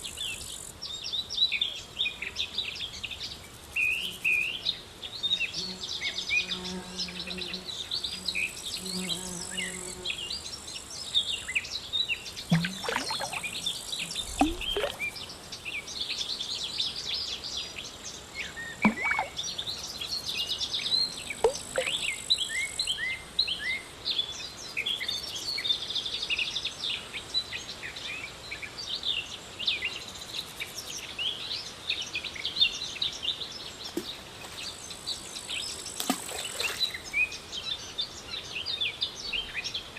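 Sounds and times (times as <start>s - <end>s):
small birds chirping: 0.0s - 25.7s
insect buzz: 2.9s - 16.8s, 18.0s - 23.5s, 33.8s - 37.4s.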